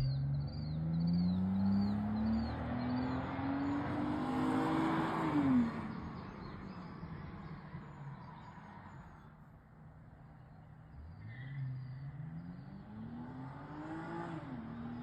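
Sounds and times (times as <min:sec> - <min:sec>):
car engine accelerating: 0:00.0 - 0:06.8, 0:10.9 - 0:15.0.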